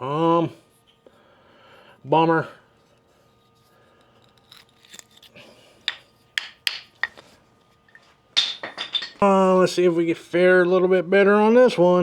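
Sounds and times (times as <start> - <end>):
wood and tools clicking and rubbing: 2.9 - 9.2
sharp knocks: 5.9 - 7.2.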